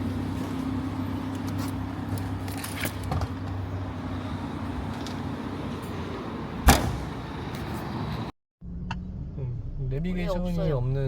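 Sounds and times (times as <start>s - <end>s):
car door slamming: 6.6s - 7.4s.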